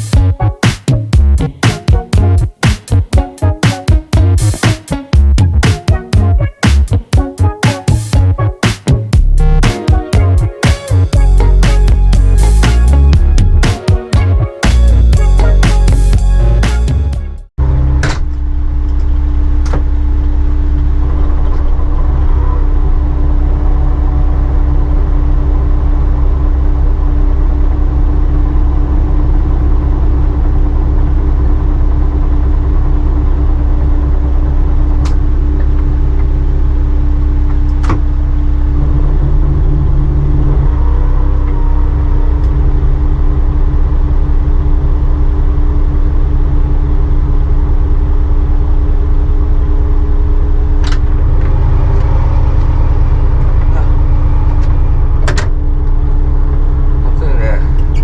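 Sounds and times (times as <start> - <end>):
boat engine droning: 17.6 - 58.0.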